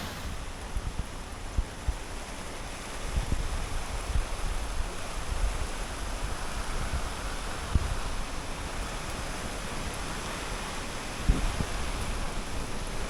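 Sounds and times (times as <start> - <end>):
rushing storm wind: 0.0 - 0.6.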